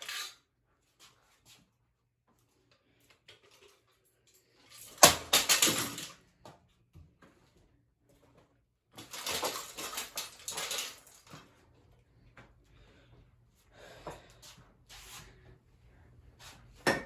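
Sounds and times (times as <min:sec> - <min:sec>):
fan parts clattering and scraping: 0:09.0 - 0:11.5.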